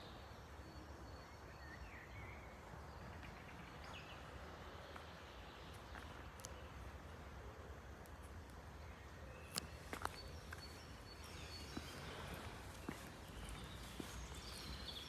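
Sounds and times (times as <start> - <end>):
faint bird chirps: 6.4 - 15.0.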